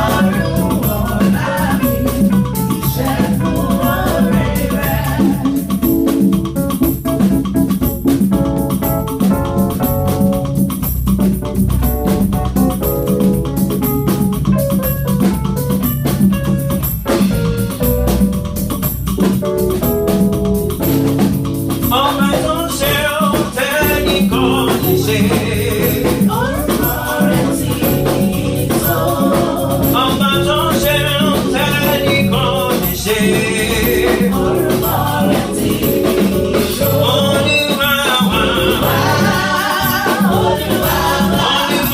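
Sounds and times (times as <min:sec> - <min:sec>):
people singing: 0:00.0 - 0:06.3, 0:21.9 - 0:41.9
organ-style keyboard chords: 0:00.0 - 0:41.9
steady drum beat: 0:00.0 - 0:41.9.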